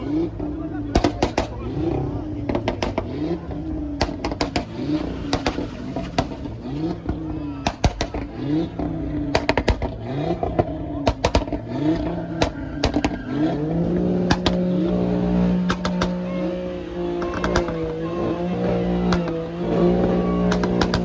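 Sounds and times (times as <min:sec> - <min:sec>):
car engine revving: 0:00.0 - 0:21.0
sharp pops and clicks: 0:00.9 - 0:01.6, 0:04.0 - 0:05.6, 0:07.6 - 0:08.3, 0:09.3 - 0:10.0, 0:11.0 - 0:11.6, 0:14.3 - 0:14.6, 0:15.6 - 0:16.2.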